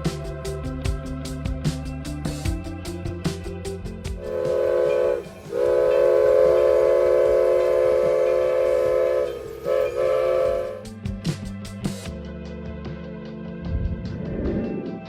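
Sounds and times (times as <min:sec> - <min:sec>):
steam locomotive chime whistle: 0:04.2 - 0:10.8.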